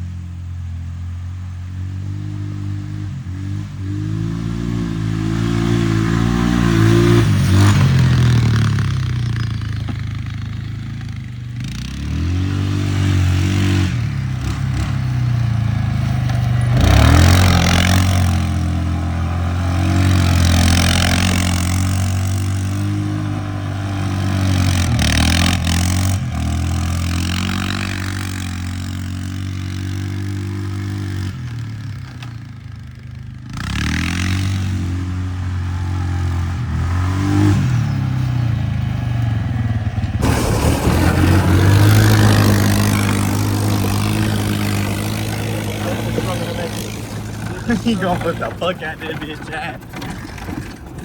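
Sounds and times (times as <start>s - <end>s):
small motorbike engine revving: 2.1s - 51.0s.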